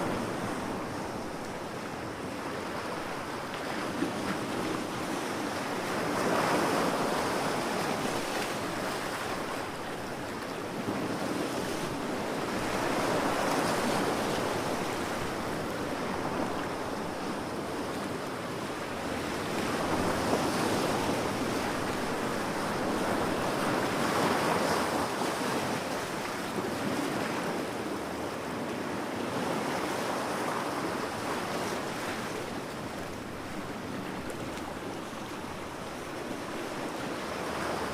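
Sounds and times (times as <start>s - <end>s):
ocean waves breaking on beach: 0.0s - 37.9s.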